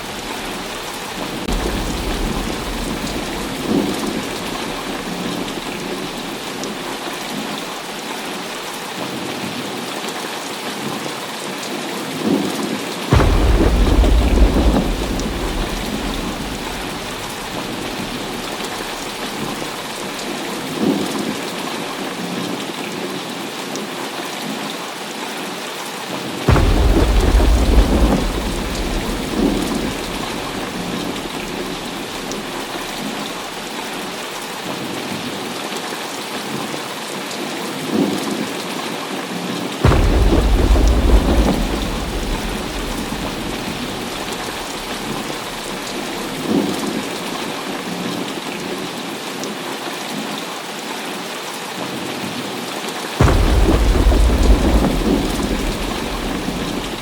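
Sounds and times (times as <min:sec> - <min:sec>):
deep thunder claps: 0:00.0 - 0:06.9, 0:13.1 - 0:20.4, 0:26.5 - 0:33.6, 0:39.8 - 0:48.0, 0:53.2 - 0:57.0
thunder rumbling: 0:00.0 - 0:06.9, 0:13.1 - 0:20.8, 0:26.5 - 0:33.9, 0:39.8 - 0:48.0, 0:53.2 - 0:57.0
heavy rain falling: 0:00.0 - 0:57.0.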